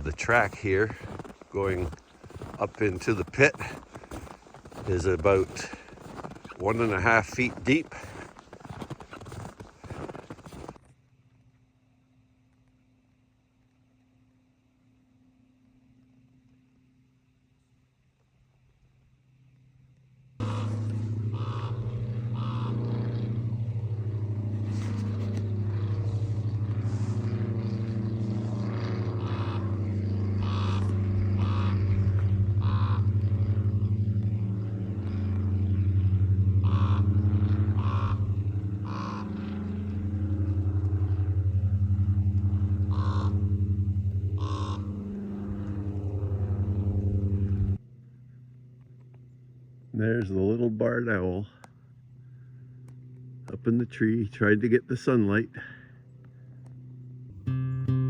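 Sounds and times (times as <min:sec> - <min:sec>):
motor engine running: 0:00.0 - 0:10.9, 0:20.3 - 0:50.0, 0:55.5 - 0:58.0.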